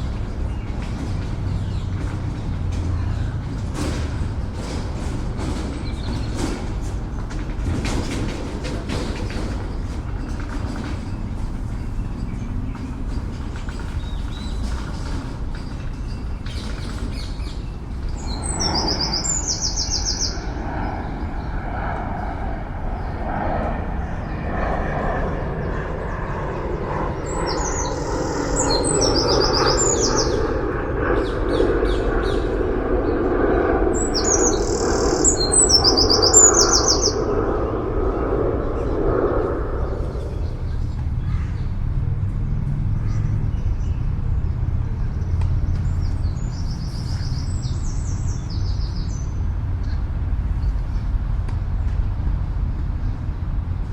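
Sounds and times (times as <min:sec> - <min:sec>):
city traffic rumble: 0:00.0 - 0:53.9
songbird trilling: 0:18.1 - 0:20.7, 0:27.3 - 0:30.6, 0:34.0 - 0:37.3.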